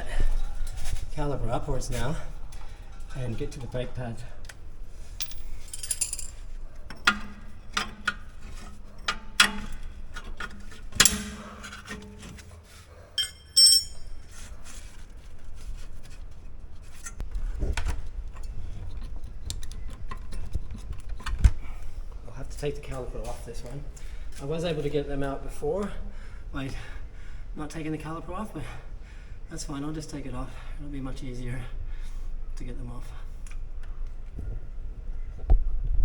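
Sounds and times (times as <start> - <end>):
metal tools clinking and scraping: 5.2 - 12.4, 13.2 - 14.5
bright metallic ring: 13.2 - 14.2.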